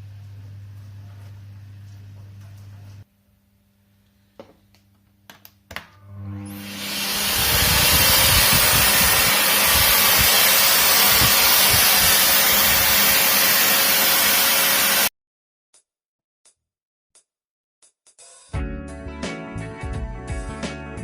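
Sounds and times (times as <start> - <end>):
vacuum cleaner motor whirring: 6.1 - 15.1.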